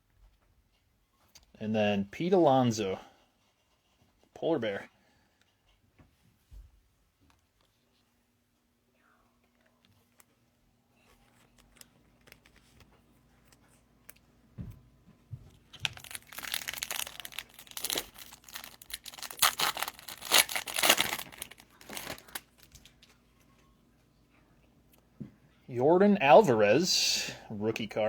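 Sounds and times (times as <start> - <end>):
foil wrapper tearing and crinkling: 15.7 - 22.9.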